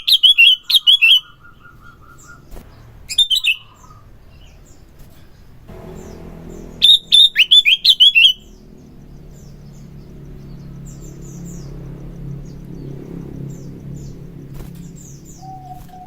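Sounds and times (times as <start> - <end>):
steady low hum: 5.6 - 16.0
bird singing whistled notes: 15.3 - 16.0.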